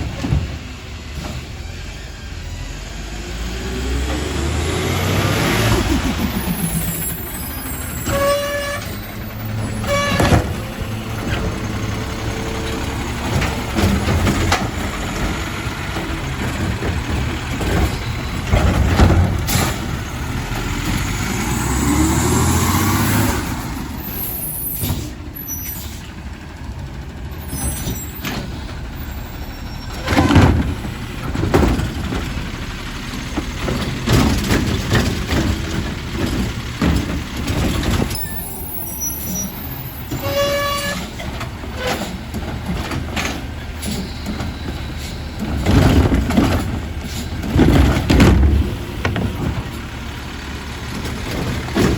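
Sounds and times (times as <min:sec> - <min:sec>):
diesel engine rumbling: 0:00.0 - 0:51.9
air brakes hissing: 0:23.6 - 0:26.2, 0:27.4 - 0:30.2, 0:43.7 - 0:45.6
loud metal clanks: 0:39.2 - 0:49.9.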